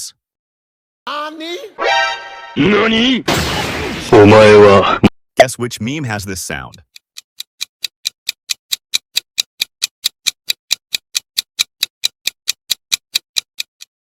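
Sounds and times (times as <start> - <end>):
clock ticking: 5.4 - 14.0.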